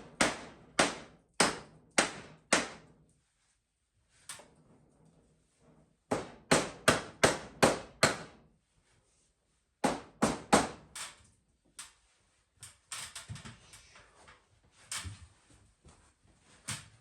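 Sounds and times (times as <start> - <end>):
hammer strikes: 0.2 - 2.8, 6.1 - 8.3.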